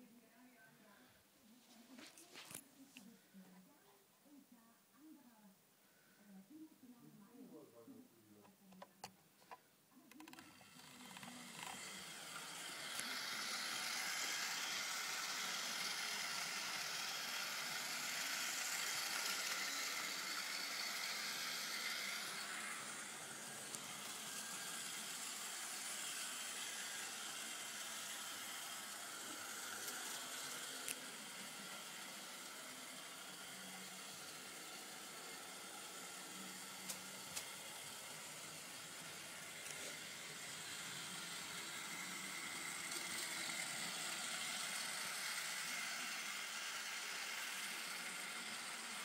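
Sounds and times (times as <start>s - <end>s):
model train motor whirring: 10.1s - 49.0s.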